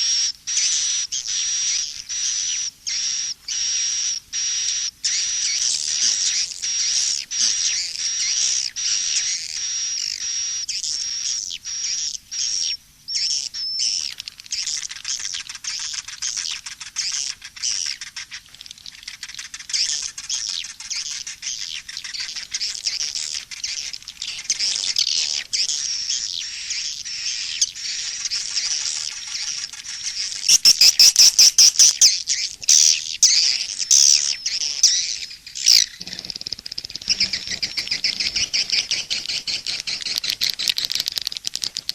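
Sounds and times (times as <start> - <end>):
swiftlet twittering and chirping: 0.0 - 41.9
loud rapid clicks: 36.2 - 38.2, 39.0 - 41.9.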